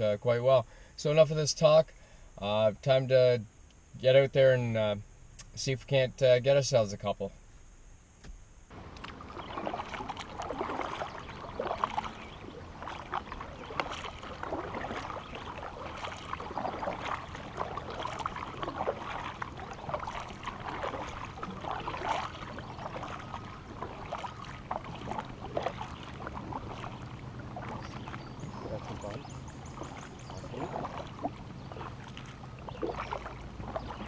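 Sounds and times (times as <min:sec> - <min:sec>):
paddle splashing in water: 0:08.7 - 0:34.0
water dripping: 0:08.7 - 0:34.0.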